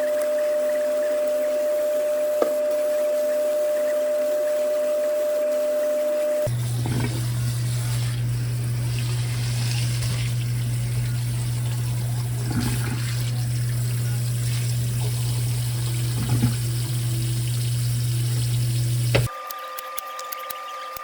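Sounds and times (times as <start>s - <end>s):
constant low hum: 6.5s - 19.3s
water running from tap: 6.5s - 20.6s.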